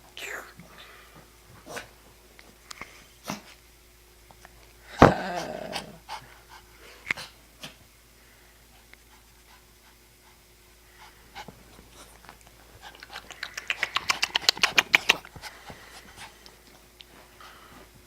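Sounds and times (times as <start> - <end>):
wolf panting fast: 6.0 - 7.8, 8.6 - 17.9.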